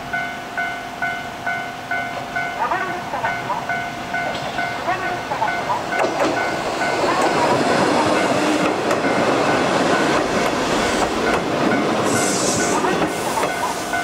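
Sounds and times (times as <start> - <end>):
level crossing bell: 0.1 - 10.2
train wheels clattering: 4.2 - 14.0
brief high hiss: 12.1 - 12.7.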